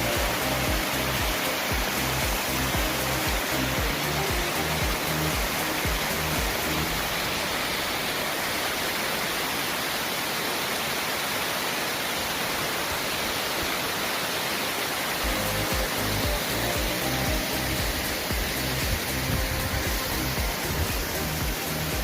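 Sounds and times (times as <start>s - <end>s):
background music with a beat: 0.0s - 7.0s, 15.2s - 22.0s
waterfall rushing: 0.0s - 22.0s.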